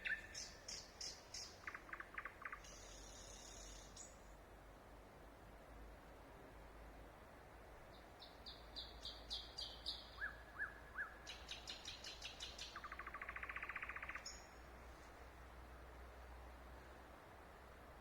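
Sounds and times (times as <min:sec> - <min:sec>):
nightingale singing: 0:00.0 - 0:04.2, 0:08.2 - 0:14.5.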